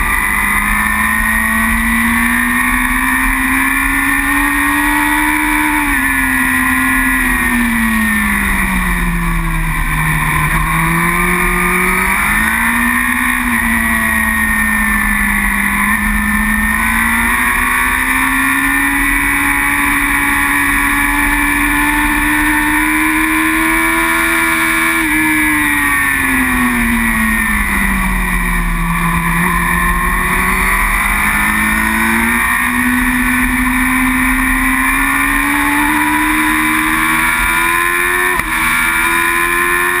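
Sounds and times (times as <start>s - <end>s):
motorcycle engine at racing speed: 0.0s - 40.0s.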